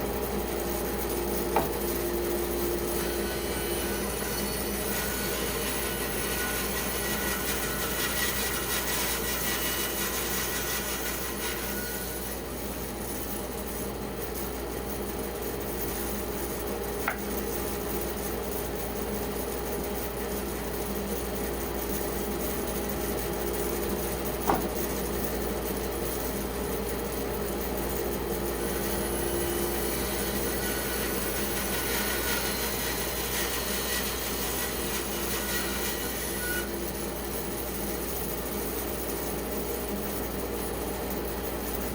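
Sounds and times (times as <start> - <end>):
band saw cutting log: 1.2 - 12.3, 24.4 - 24.8, 28.6 - 36.7.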